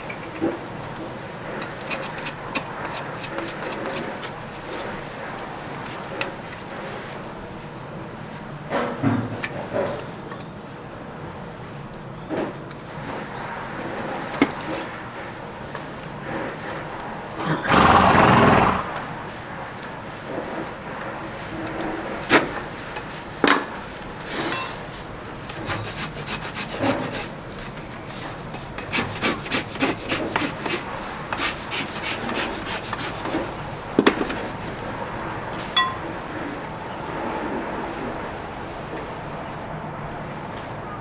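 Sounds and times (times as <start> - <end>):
rasp scraping hoof: 1.5 - 5.1, 17.4 - 19.2, 25.5 - 33.6.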